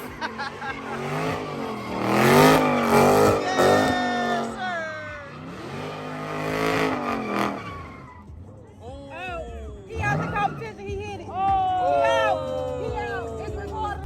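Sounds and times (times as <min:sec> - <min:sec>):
car engine revving hard: 0:00.0 - 0:08.3.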